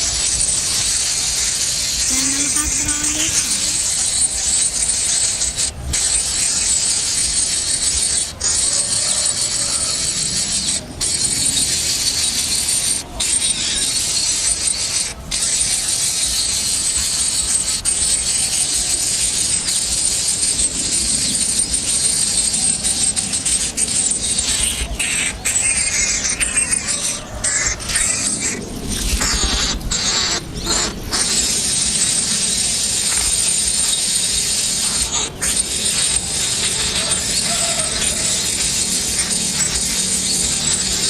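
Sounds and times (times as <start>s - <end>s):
high-pitched insect buzzing: 0.1s - 8.3s, 25.5s - 41.0s.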